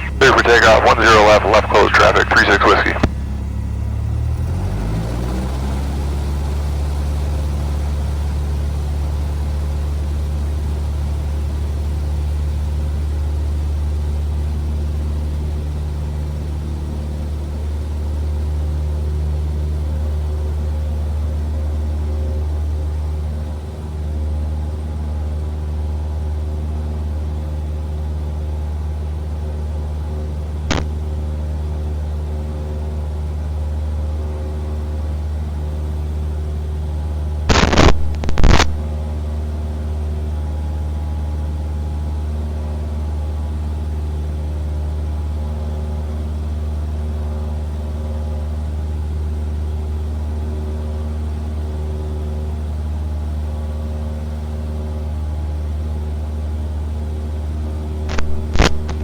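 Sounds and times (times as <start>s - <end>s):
loud crackles: 0.0s - 3.2s, 30.7s - 31.0s, 37.5s - 38.8s, 58.1s - 59.0s
airplane engine drone: 0.0s - 10.0s
sharp click: 30.7s - 31.0s, 58.1s - 59.0s.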